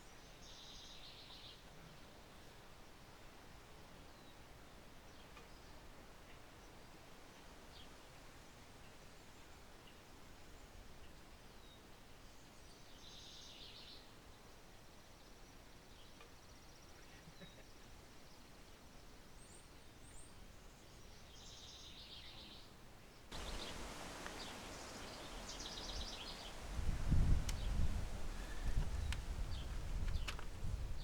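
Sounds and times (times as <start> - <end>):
small birds chirping: 23.3 - 31.0.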